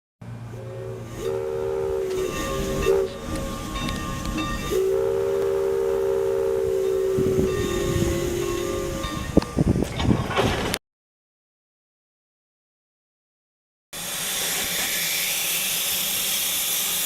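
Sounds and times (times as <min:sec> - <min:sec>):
train horn blasts: 0:00.3 - 0:09.8.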